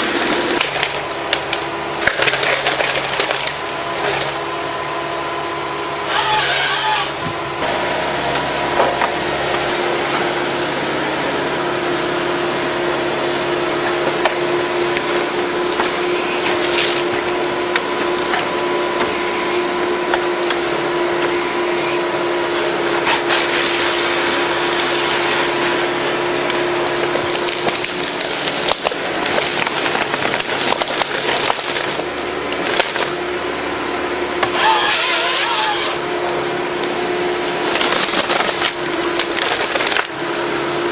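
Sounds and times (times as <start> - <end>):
wood cracking and splintering: 0.0 - 4.9, 14.2 - 19.2, 22.8 - 33.2, 34.4 - 36.0, 37.6 - 40.2
harvester engine and hydraulics hum: 0.0 - 40.9.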